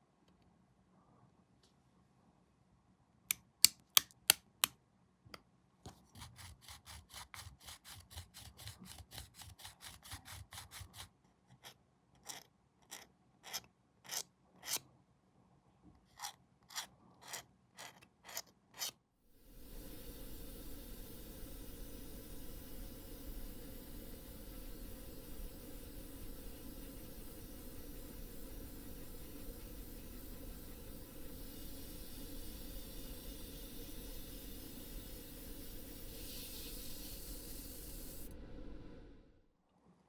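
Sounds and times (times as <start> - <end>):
file scraping plastic: 5.9 - 14.8, 16.0 - 19.0
steady hiss: 19.3 - 39.4.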